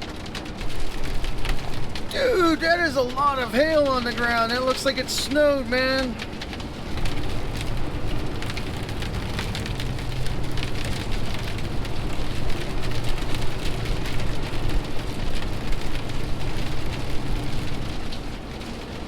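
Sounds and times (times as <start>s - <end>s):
rain on truck cab: 0.0s - 19.0s
truck engine humming: 0.8s - 14.7s.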